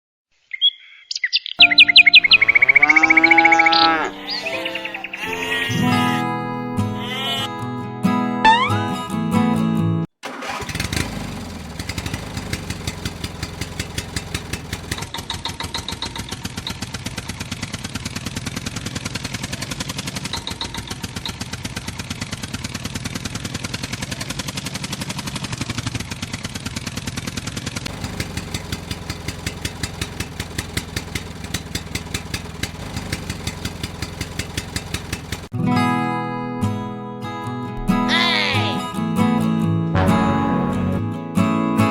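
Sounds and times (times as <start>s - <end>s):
small engine starting and puttering: 10.2s - 35.6s.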